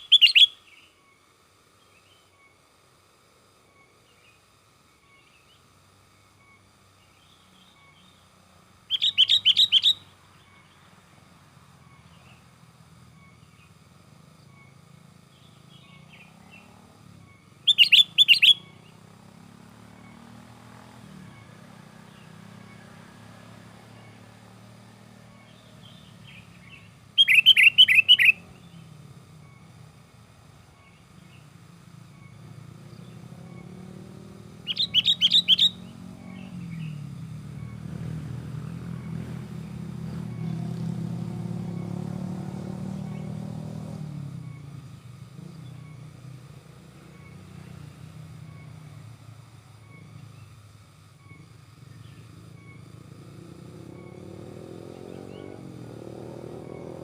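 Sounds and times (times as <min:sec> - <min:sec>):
bird rapid chattering calls: 0:00.0 - 0:00.6, 0:08.9 - 0:10.0, 0:17.7 - 0:18.7, 0:25.6 - 0:28.8, 0:34.6 - 0:36.9
low engine drone: 0:03.6 - 0:57.0.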